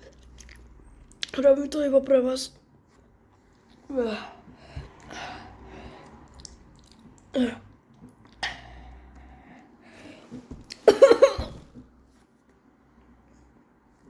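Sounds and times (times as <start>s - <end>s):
person clearing throat: 10.8s - 11.7s
person coughing: 10.8s - 11.7s.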